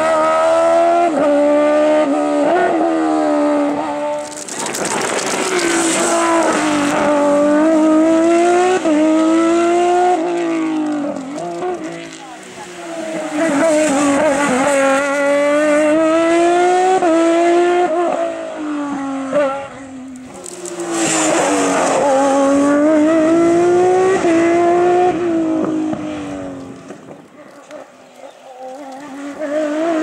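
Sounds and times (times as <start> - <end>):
race car engine accelerating past: 4.9 - 27.1, 28.8 - 30.0.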